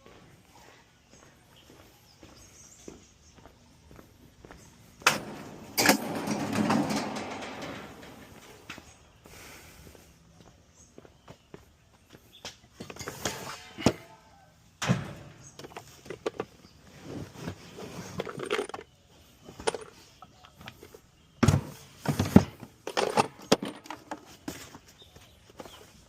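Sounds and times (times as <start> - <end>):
metal tools clanking: 5.0 - 9.1, 22.2 - 24.2.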